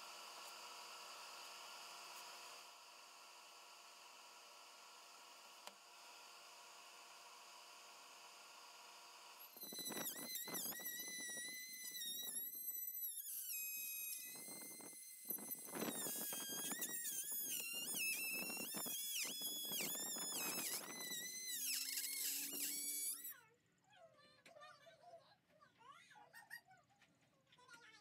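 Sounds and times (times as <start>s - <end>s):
power carving tool whining: 7.0s - 23.3s
rough grinding noise: 9.4s - 23.3s.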